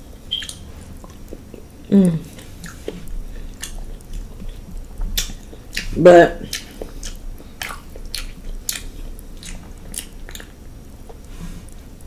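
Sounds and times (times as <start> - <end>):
close chewing and mouth sounds: 0.1 - 12.0
person humming: 1.9 - 2.4.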